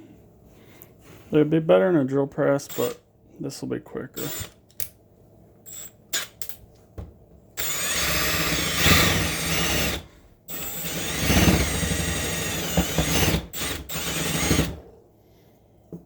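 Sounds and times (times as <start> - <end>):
power drill cutting holes: 2.6 - 3.0, 4.2 - 4.5, 7.6 - 14.8.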